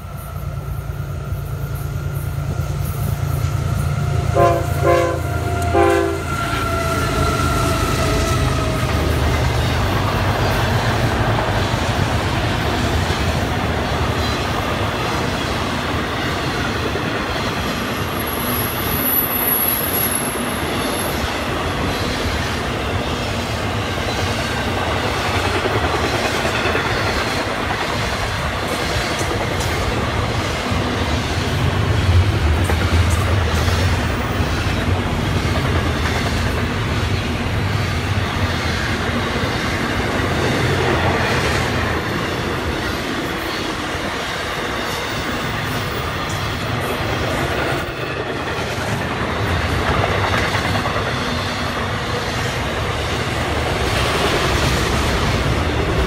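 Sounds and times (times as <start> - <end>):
diesel locomotives rumbling: 0.0 - 56.0
train horn blasts: 4.2 - 9.0
wheels clattering on rail: 8.3 - 56.0.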